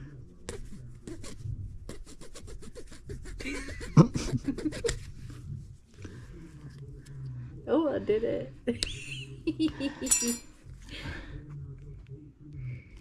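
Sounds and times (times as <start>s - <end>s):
knife sawing plastic: 0.5s - 5.2s.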